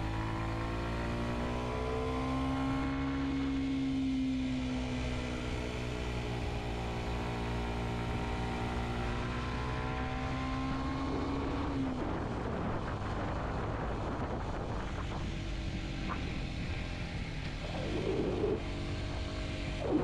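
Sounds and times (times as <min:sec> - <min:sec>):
motorcycle engine running: 0:10.5 - 0:20.0.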